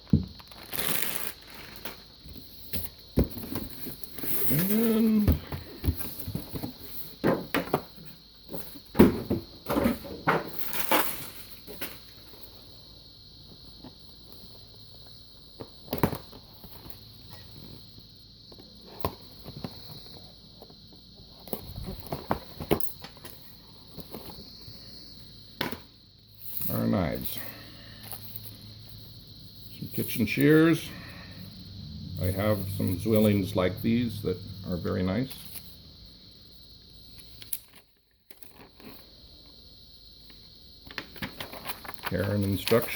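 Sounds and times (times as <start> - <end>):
packaging knocks clicks and rustles: 40.8 - 42.9.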